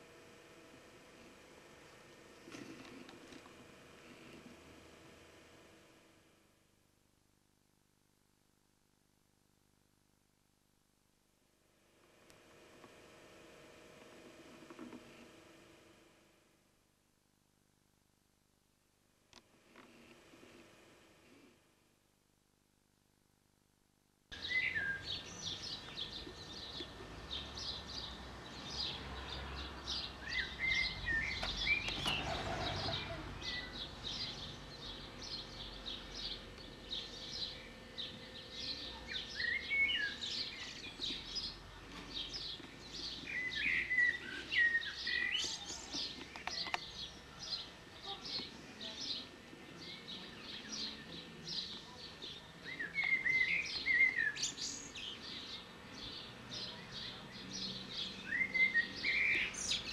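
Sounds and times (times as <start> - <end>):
small birds chirping: 24.3 - 59.9.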